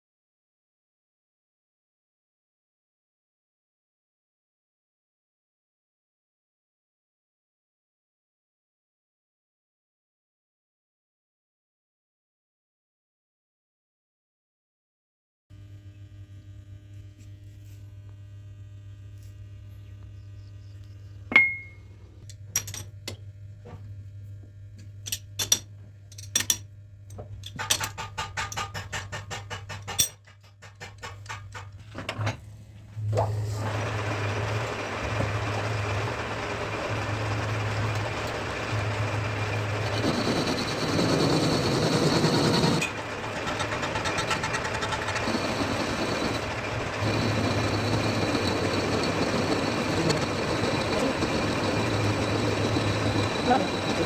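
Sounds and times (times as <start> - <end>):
low electric hum: 15.6 - 27.6
lathe running with low throb: 33.0 - 54.0.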